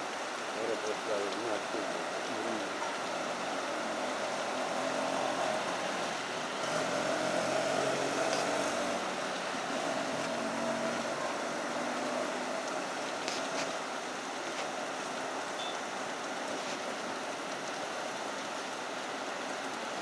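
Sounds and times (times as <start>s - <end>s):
rain hiss: 0.0s - 20.0s
traffic on wet road: 0.0s - 20.0s
vehicle engine passing: 1.8s - 13.5s.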